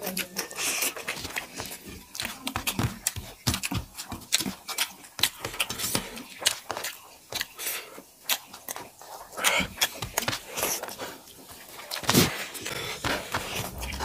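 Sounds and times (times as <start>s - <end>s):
chewing and lip smacking: 0.0s - 14.0s.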